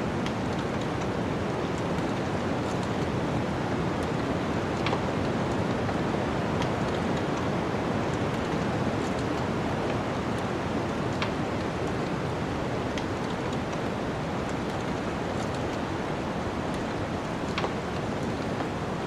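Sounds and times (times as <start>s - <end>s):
wood fire crackling and popping: 4.8s - 5.0s, 9.1s - 19.0s.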